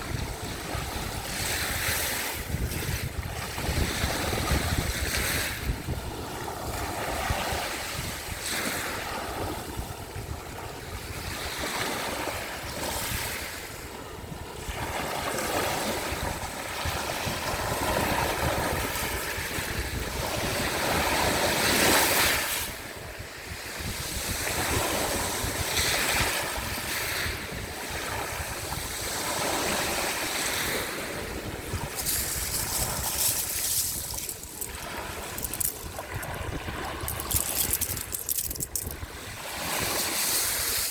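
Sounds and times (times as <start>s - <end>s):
wind rumble on microphone: 0.0s - 40.9s
sea waves washing onto shore: 24.1s - 40.9s.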